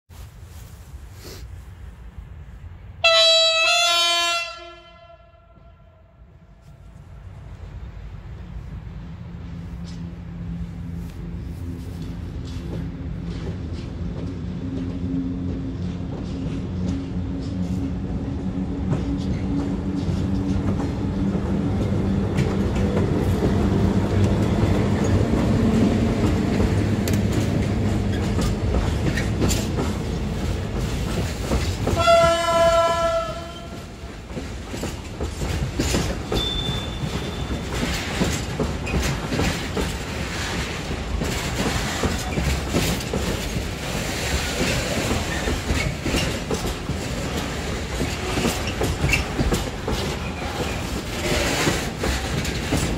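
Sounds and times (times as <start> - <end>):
electric locomotive humming: 2.1 - 52.9
train horn blast: 3.0 - 6.9, 31.8 - 34.0
wheels clacking over rail joints: 12.0 - 52.9
high wheel squeal: 36.3 - 37.8.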